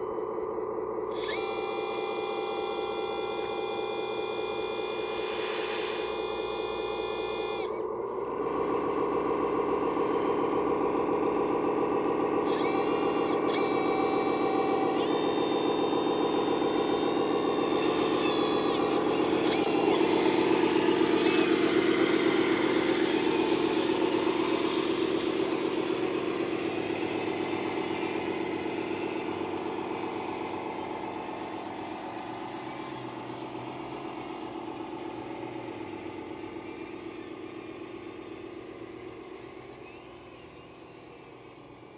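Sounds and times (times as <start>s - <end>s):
toy machine engine-like hum: 0.0s - 41.9s
thin high whines: 1.1s - 41.8s.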